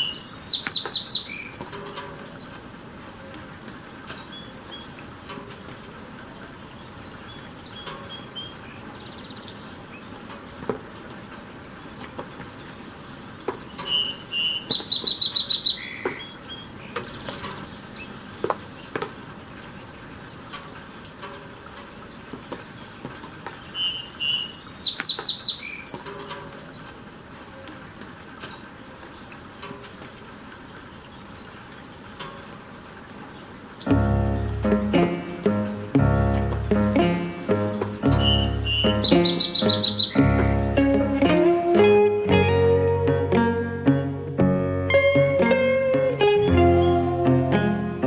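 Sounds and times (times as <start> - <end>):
bird chip: 0.0 - 2.4, 33.9 - 42.0
drips ticking: 0.0 - 42.0
steady rain: 0.0 - 43.4, 45.2 - 48.0
stuttering high bird notes: 33.9 - 42.6, 44.9 - 48.0.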